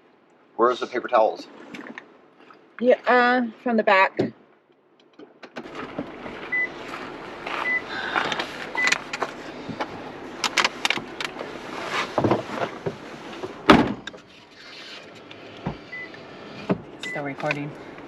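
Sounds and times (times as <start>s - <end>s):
rummaging in car cabin: 5.0s - 18.0s.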